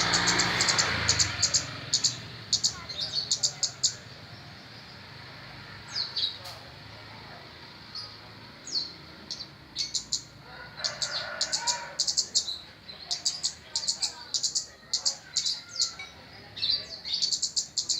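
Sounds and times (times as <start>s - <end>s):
bird chirping high: 0.0s - 4.2s, 8.0s - 17.9s.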